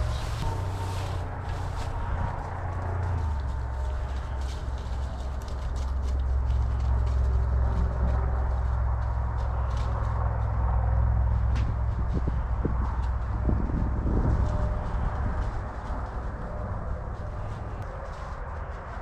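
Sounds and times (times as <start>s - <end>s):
footsteps through dry grass: 0.0s - 19.0s
wind rumbling on microphone: 0.0s - 19.0s.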